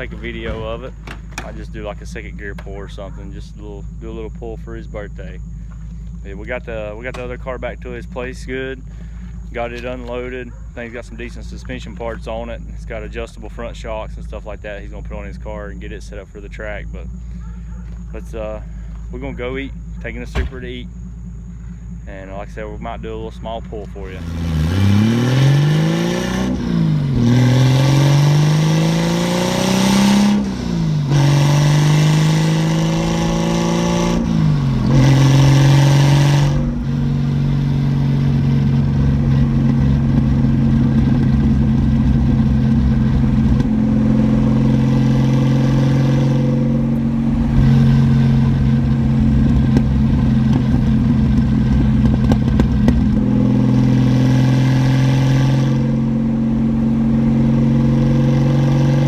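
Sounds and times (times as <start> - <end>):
car engine accelerating through gears: 23.6 - 59.0.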